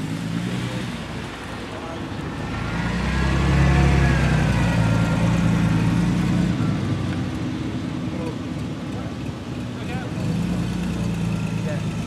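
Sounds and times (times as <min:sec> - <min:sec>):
car engine driving past: 0:02.2 - 0:07.2.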